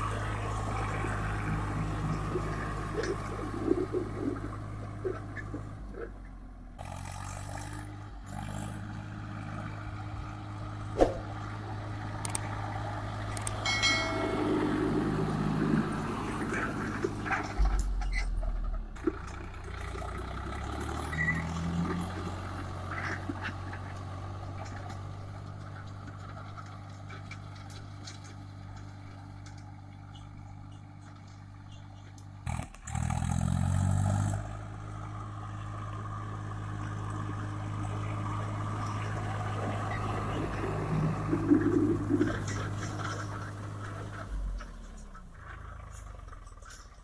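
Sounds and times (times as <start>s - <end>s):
tractor diesel engine running: 0.0s - 47.0s.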